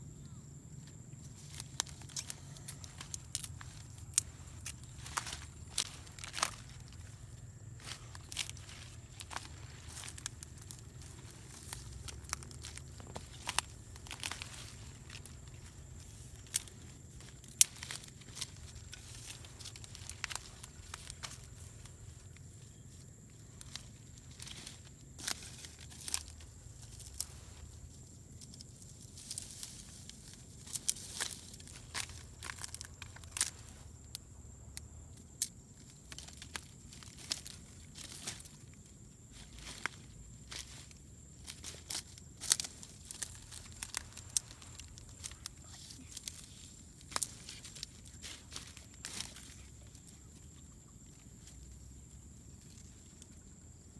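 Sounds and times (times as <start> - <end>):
low steady hum: 0.0 - 53.9
crackles and sharp snaps: 0.2 - 51.9.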